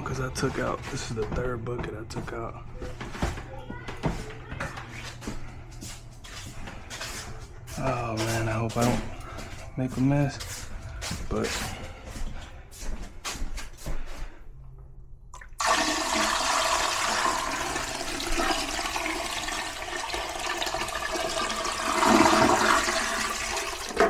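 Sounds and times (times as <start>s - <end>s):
toilet flushing: 15.3s - 24.0s.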